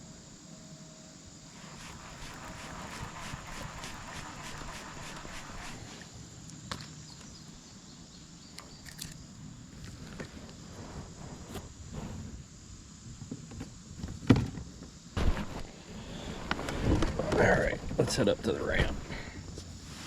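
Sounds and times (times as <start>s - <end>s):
fishing gear clicks and knocks: 8.8s - 9.2s
sharp thump: 15.2s - 15.6s.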